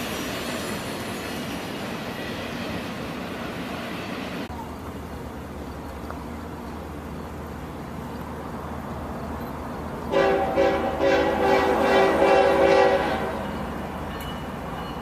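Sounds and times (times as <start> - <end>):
train rumble: 0.0 - 15.0
locomotive air horn blasts: 10.1 - 13.4.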